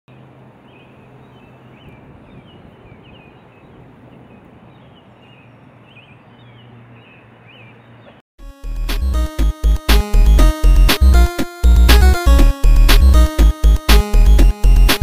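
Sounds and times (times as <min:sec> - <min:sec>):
bird chirping: 0:00.1 - 0:08.2.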